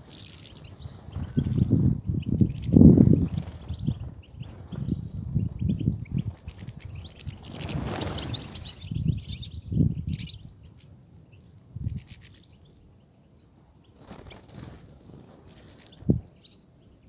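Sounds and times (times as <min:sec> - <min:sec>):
finch twittering: 0:00.1 - 0:10.6.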